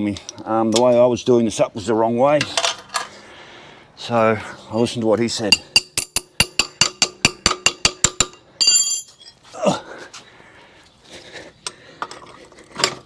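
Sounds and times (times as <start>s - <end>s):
metal parts clinking: 8.1s - 9.5s
short metallic ring: 8.6s - 9.4s.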